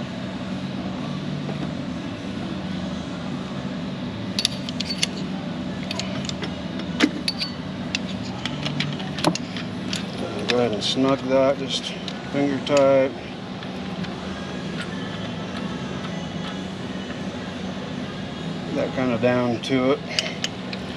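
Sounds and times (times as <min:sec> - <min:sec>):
steady low hum: 0:00.0 - 0:20.9
metal tool clicks and clinks: 0:04.4 - 0:05.2, 0:05.8 - 0:06.6, 0:07.2 - 0:10.6.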